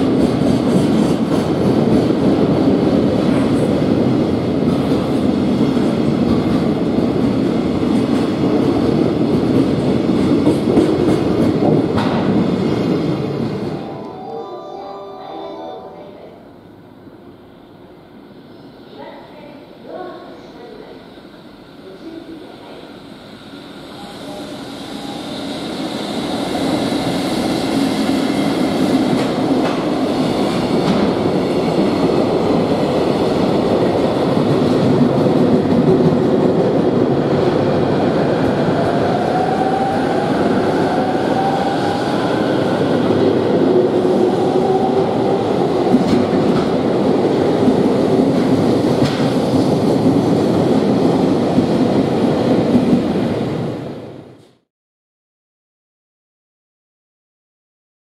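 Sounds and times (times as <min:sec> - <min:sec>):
freight train passing: 0:00.0 - 0:54.5
commuter train passing: 0:00.0 - 0:54.6.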